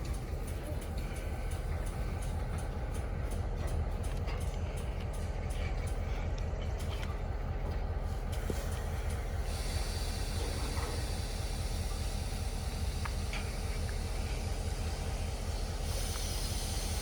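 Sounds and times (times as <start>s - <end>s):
vehicle hiss: 8.2s - 17.0s.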